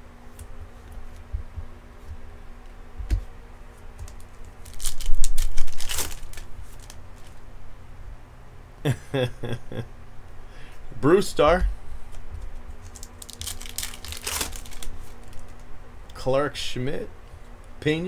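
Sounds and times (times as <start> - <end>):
cards rustling and sliding: 4.0 - 7.4.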